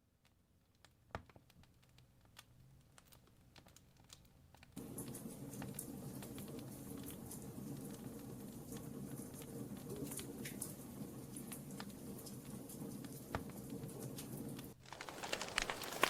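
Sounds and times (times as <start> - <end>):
campfire crackling and popping: 14.8 - 16.0
low rush of flames: 14.8 - 16.0.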